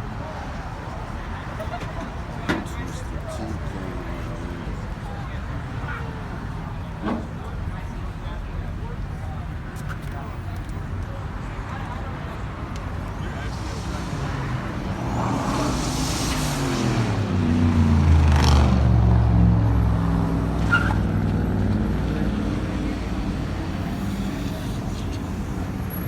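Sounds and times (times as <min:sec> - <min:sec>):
car driving past: 0:13.2 - 0:24.5.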